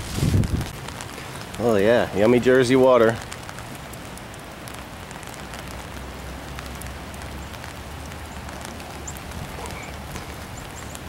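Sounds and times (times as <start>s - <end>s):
rain falling: 0.0s - 11.0s
raindrops ticking close by: 0.0s - 11.0s.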